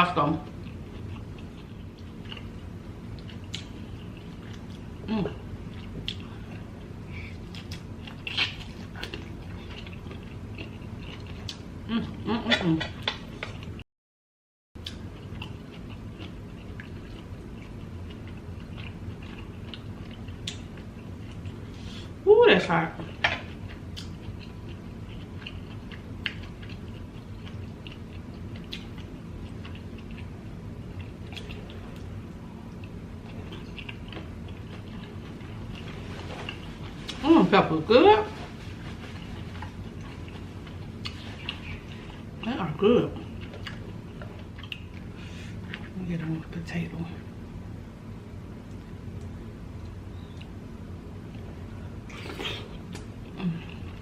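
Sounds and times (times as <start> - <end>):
person chewing wetly: 0.6 - 5.0, 5.6 - 11.7, 14.8 - 21.7, 23.2 - 37.2, 38.8 - 42.4, 43.2 - 45.9.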